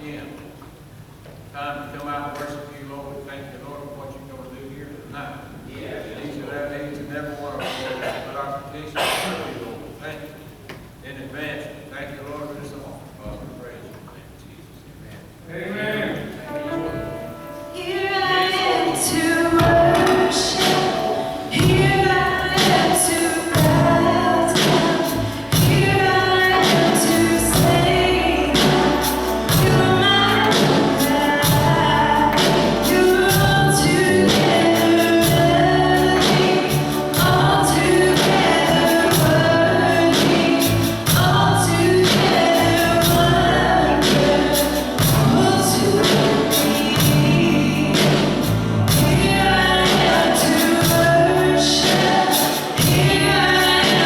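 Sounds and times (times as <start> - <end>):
gospel group singing: 16.0 - 54.0
instrumental accompaniment with beat: 19.6 - 54.0.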